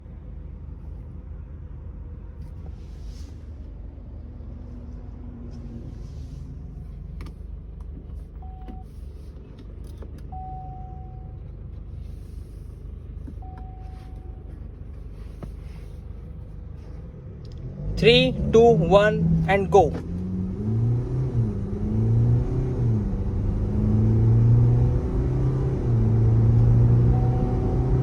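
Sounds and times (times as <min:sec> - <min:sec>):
diesel engine idling: 0:00.0 - 0:20.1.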